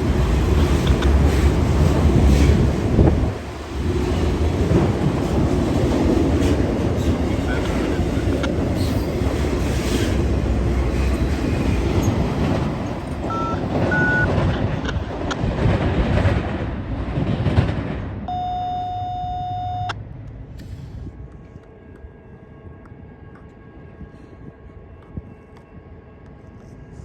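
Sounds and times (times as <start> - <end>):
freight train rumbling past: 0.0 - 19.2.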